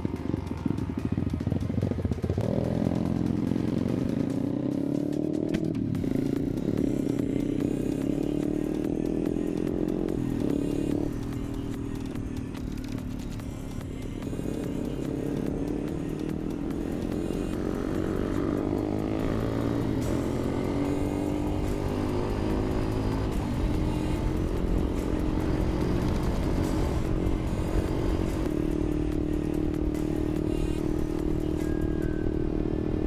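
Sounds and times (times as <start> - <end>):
motorcycle engine running: 0.0 - 33.0
wind and road noise: 8.0 - 33.0.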